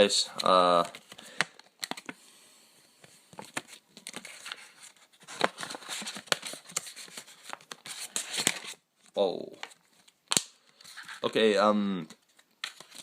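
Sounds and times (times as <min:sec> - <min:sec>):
card pack wrapper crinkling and tearing: 0:03.4 - 0:08.8.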